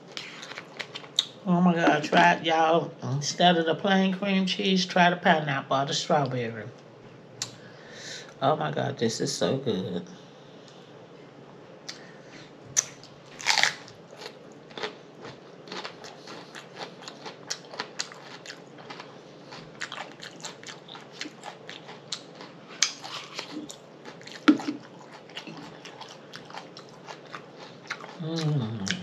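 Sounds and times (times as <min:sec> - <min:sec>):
chewing crunchy pepper: 0:12.8 - 0:29.0
loud crunchy bites: 0:13.4 - 0:19.1.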